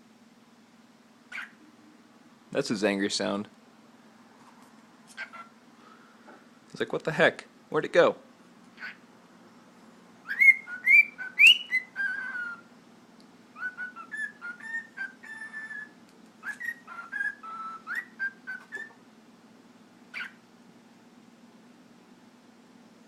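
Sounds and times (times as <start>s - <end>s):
cockatiel whistling: 1.3s - 1.7s, 10.2s - 12.7s, 13.5s - 19.0s, 20.1s - 20.4s.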